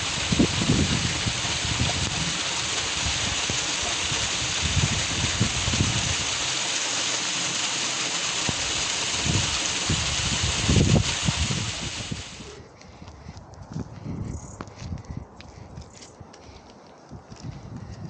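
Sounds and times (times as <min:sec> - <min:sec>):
wind buffeting microphone: 0:00.0 - 0:06.6, 0:08.4 - 0:18.0
running water: 0:00.0 - 0:12.6.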